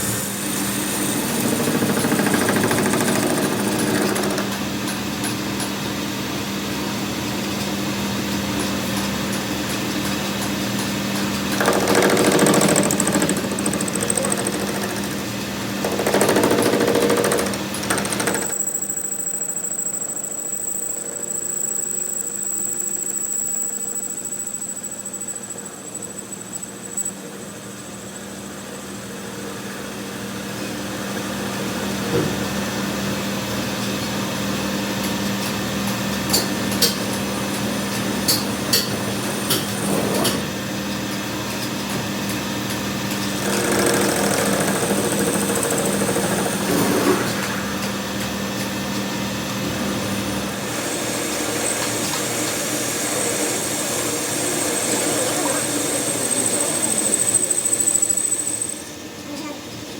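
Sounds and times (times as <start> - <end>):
power tool hum: 0.1 - 4.6, 11.5 - 28.2, 50.5 - 59.0
sharp metallic clicks: 15.9 - 27.2
high whine: 18.5 - 28.8.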